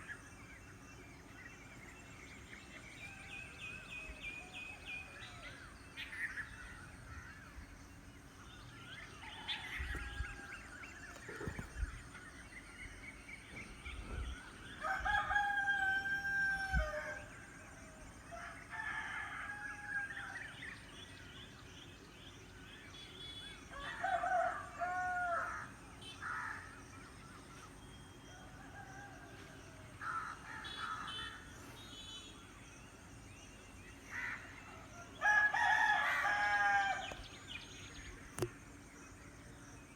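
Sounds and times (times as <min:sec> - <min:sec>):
roosters crowing: 0:14.8 - 0:17.3, 0:23.7 - 0:25.7, 0:35.2 - 0:37.2.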